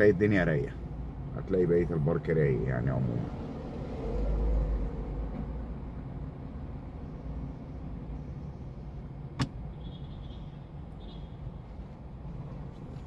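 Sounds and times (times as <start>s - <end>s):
sharp click: 9.4s - 9.6s.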